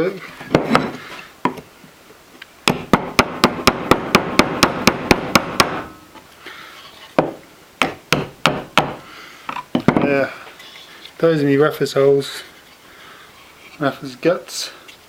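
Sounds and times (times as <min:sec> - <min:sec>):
hammer tapping on wood: 0:07.2 - 0:09.0.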